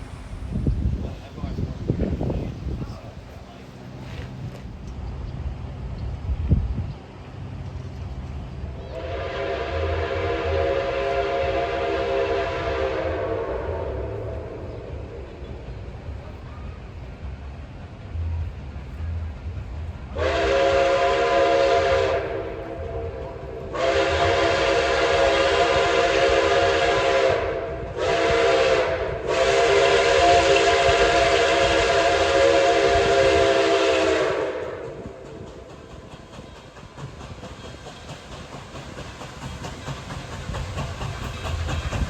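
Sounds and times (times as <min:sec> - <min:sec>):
train rumbling: 0:00.0 - 0:42.0
steam locomotive whistle blasts: 0:08.8 - 0:14.8, 0:20.2 - 0:35.3.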